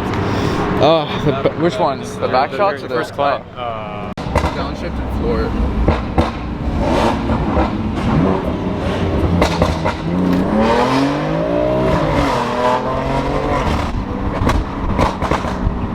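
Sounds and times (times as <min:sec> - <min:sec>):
car engine revving: 0:04.1 - 0:15.9
exhaust pops: 0:04.2 - 0:11.1, 0:11.7 - 0:15.9.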